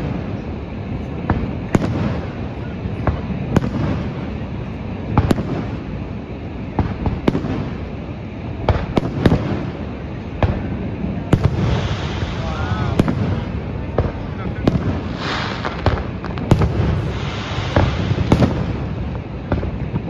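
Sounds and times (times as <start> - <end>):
fireworks bangs: 0.0 - 20.0
low rumble: 9.9 - 20.0.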